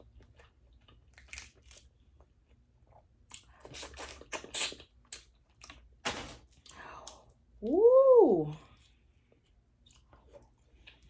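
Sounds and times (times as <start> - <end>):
biting and crunching shellfish: 0.2 - 2.3.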